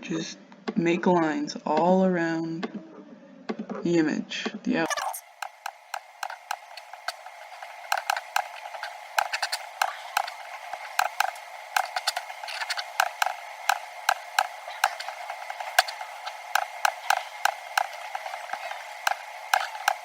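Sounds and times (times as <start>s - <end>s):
computer mouse clicking: 5.4s - 20.0s.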